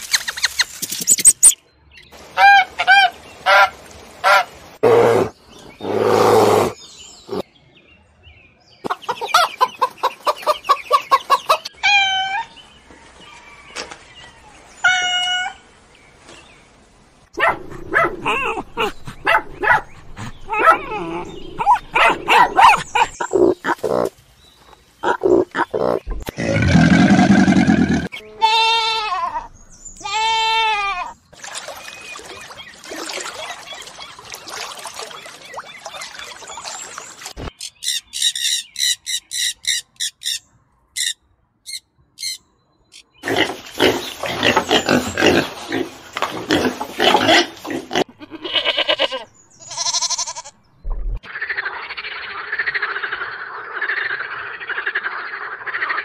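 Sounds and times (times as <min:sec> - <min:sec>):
pig grunting: 0:25.0 - 0:28.1, 0:43.2 - 0:48.1
goat bleating: 0:28.2 - 0:31.1, 0:48.0 - 0:50.6.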